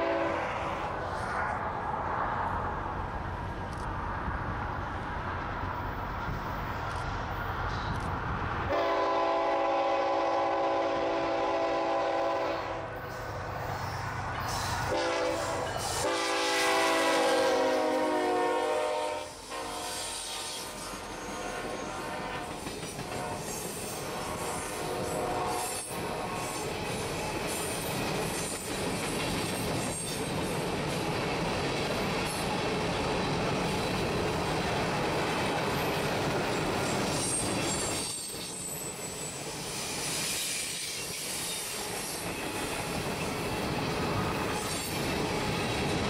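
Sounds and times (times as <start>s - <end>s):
wheels clicking over rail joints: 22.5s - 24.0s
high-pitched wheel squeal: 36.9s - 42.7s.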